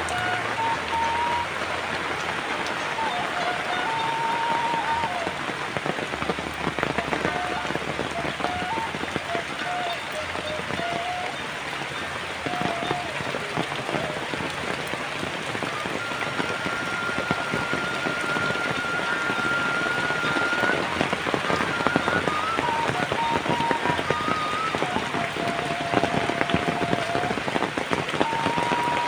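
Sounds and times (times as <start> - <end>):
thin whistle-like tone: 0.0 - 1.8, 2.8 - 5.4, 7.0 - 11.5, 15.7 - 27.4, 28.2 - 29.0
heavy rain falling: 0.0 - 29.0.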